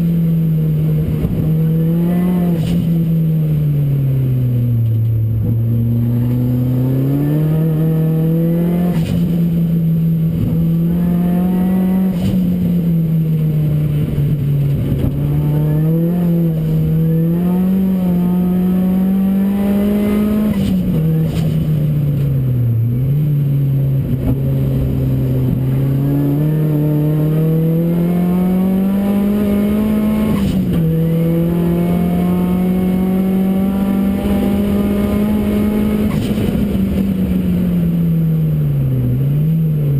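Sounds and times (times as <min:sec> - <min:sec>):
racing car engine revving: 0:00.0 - 0:39.9.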